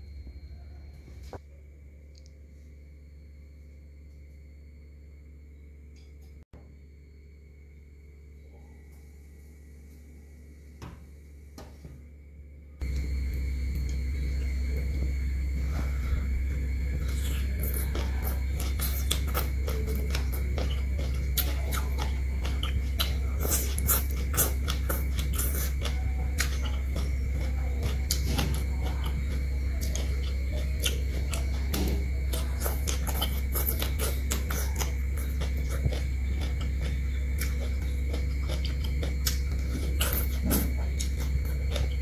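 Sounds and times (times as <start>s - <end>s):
steady low hum: 0.0s - 42.0s
crunchy chewing: 12.8s - 42.0s.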